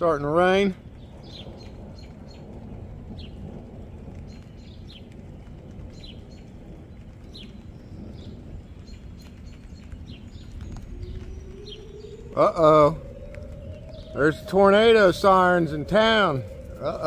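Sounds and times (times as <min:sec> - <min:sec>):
low outdoor rumble: 0:00.0 - 0:17.0
rain: 0:00.0 - 0:17.0
bird chirping: 0:00.7 - 0:17.0.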